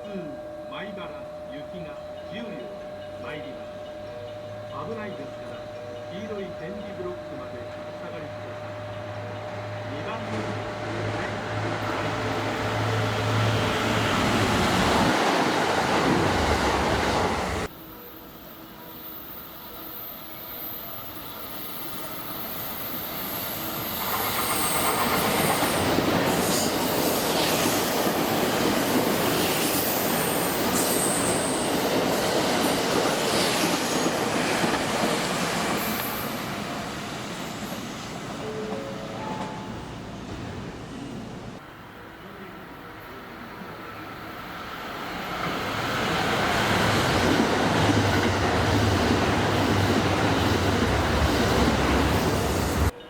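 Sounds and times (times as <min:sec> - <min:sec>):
train low hum: 0:00.0 - 0:53.0
train high squeals: 0:16.9 - 0:39.8
train wheels clattering: 0:24.0 - 0:36.6.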